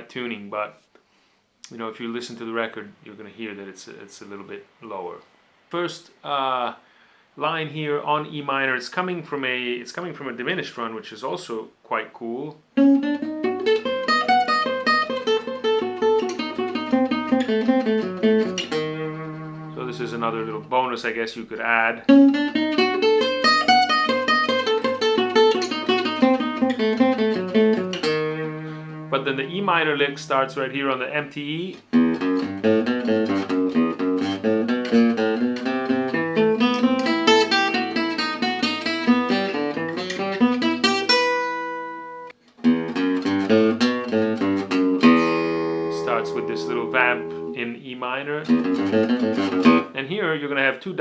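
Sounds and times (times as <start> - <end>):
acoustic guitar fast picked notes: 13.0 - 20.7, 31.9 - 47.6, 48.5 - 49.9.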